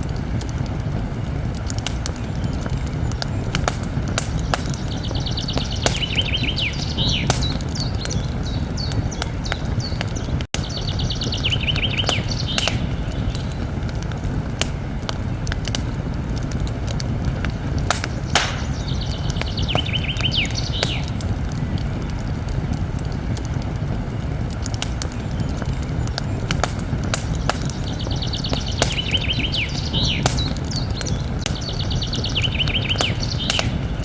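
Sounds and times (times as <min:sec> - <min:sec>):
campfire crackling and popping: 0:00.0 - 0:34.0
low rumble of flames: 0:00.0 - 0:34.0
songbird trilling: 0:04.3 - 0:13.6, 0:18.0 - 0:21.2, 0:27.3 - 0:33.8.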